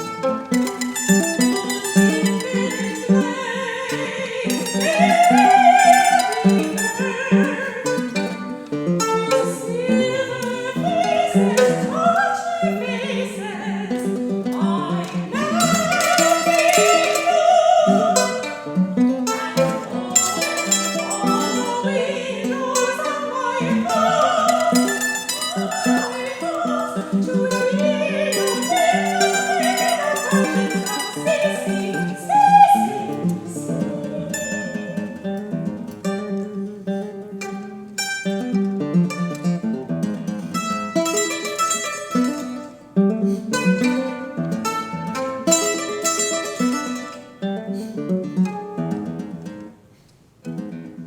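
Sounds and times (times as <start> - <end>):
soprano singing: 0.0 - 42.9
plucked mandolin: 0.0 - 49.8
guitar: 0.0 - 51.0.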